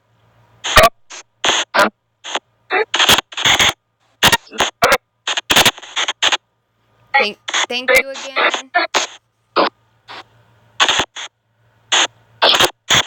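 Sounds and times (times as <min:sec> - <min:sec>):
choppy bursts of white noise: 0:07.1 - 0:13.0
clipped voice-like fragments: 0:07.7 - 0:08.7.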